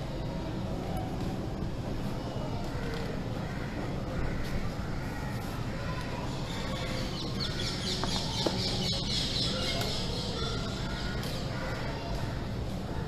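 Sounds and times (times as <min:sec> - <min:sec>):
low background hum: 0:00.0 - 0:13.0
birds calling and chattering: 0:02.6 - 0:12.6.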